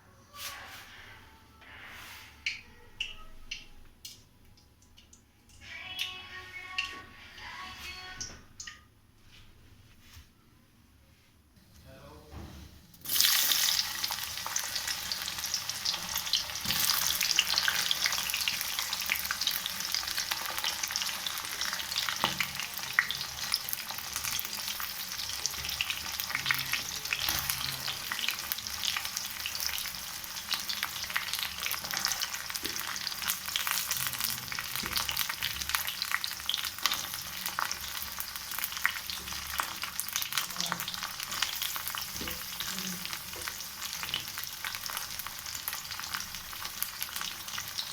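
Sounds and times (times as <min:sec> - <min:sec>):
food sizzling in oil: 0:13.0 - 0:47.9.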